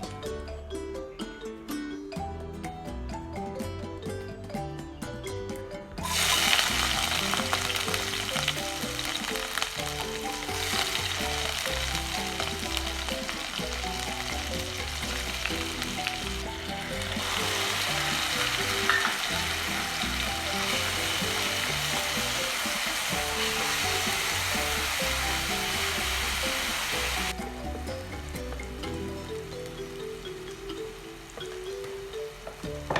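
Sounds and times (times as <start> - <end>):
food sizzling in hot oil: 6.0 - 28.5.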